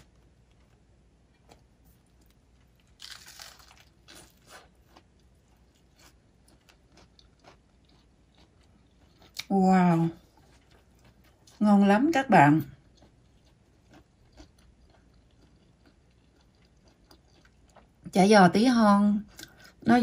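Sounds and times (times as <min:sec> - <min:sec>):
soft crunchy chewing: 0:00.0 - 0:18.2, 0:19.2 - 0:20.0
crunchy bite: 0:02.7 - 0:05.1.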